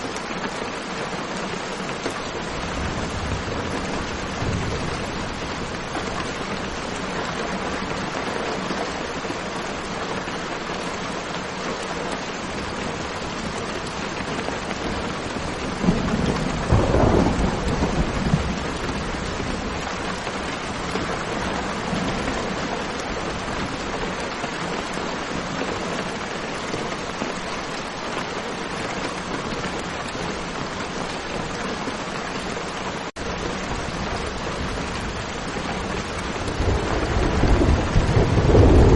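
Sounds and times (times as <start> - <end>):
rain falling: 0.0 - 38.9
thunder rumble: 2.7 - 6.8, 14.8 - 22.4, 33.4 - 38.9.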